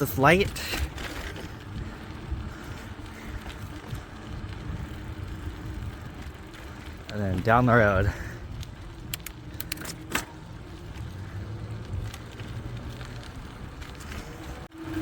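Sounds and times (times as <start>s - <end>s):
wind on microphone: 0.0s - 9.6s
sharp clicks and rattles: 0.0s - 14.7s
tyres rumbling on road: 0.0s - 15.0s.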